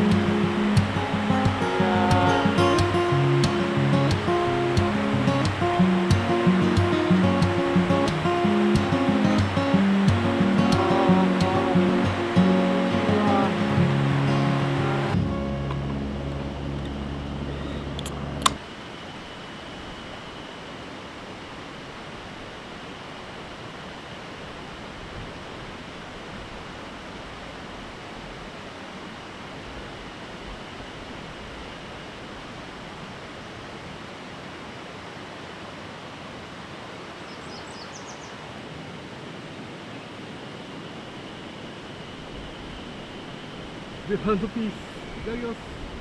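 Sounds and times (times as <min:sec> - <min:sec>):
running water rushing: 0:00.0 - 0:46.0
faint high tone: 0:10.4 - 0:18.0.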